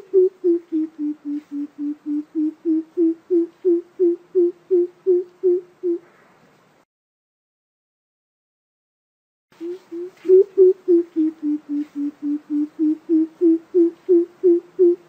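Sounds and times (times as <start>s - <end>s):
coucal low hooting call: 0.0s - 6.2s, 9.6s - 15.0s.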